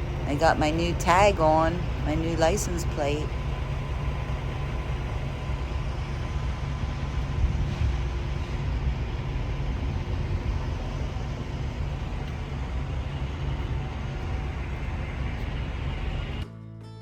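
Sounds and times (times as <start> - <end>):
truck diesel engine rumbling: 0.0 - 16.5.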